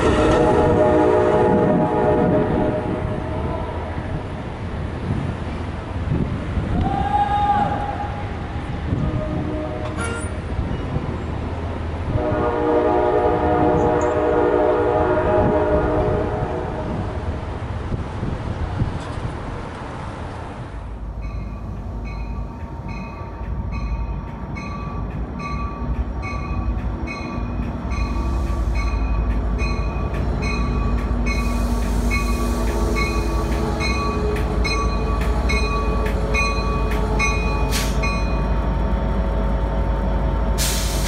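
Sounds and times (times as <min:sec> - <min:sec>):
train rumbling past: 0:00.0 - 0:41.0
crossing bell ringing: 0:21.2 - 0:38.6.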